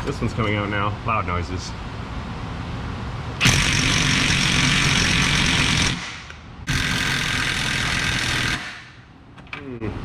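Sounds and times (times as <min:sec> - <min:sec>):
impact wrench running: 0:03.4 - 0:09.0.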